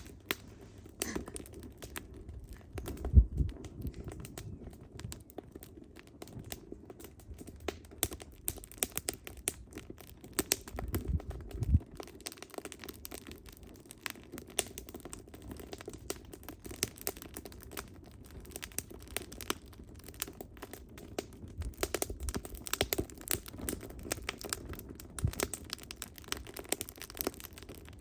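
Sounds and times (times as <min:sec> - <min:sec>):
hiss of flames: 0:00.0 - 0:05.2
firewood crackling and popping: 0:00.0 - 0:28.0.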